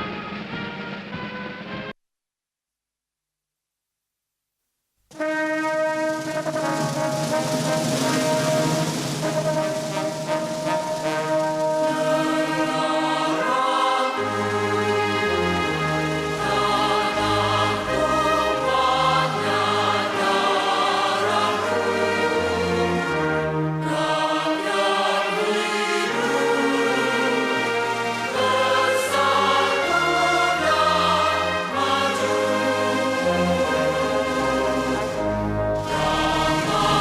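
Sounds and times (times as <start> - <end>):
orchestral accompaniment: 0.0 - 1.9, 5.1 - 37.0
choir singing: 11.2 - 37.0.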